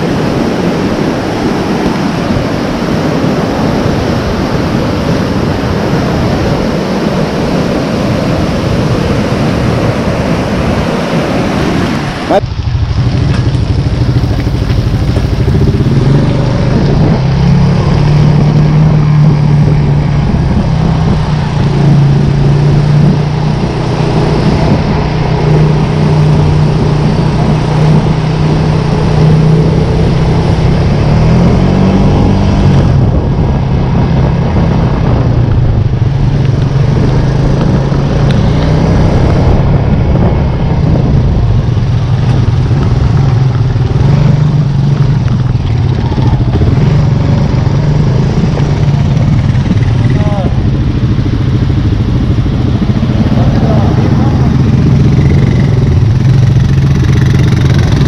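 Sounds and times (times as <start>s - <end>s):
vehicle engine running: 2.4s - 58.0s.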